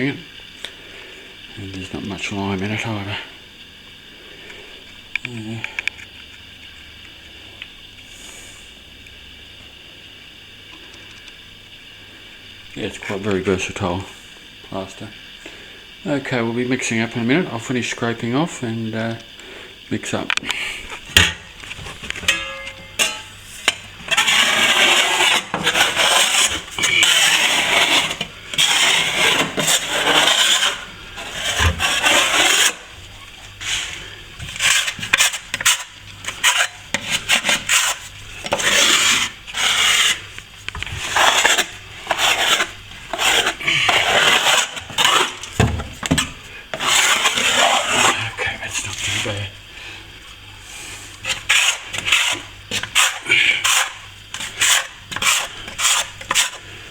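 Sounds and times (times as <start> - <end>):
blade scraping plaster: 21.2 - 49.5, 51.0 - 56.9.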